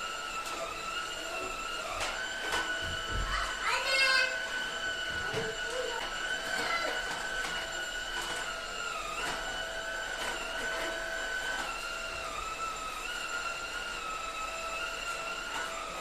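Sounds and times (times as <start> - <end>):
high motor whine: 0.0 - 16.0.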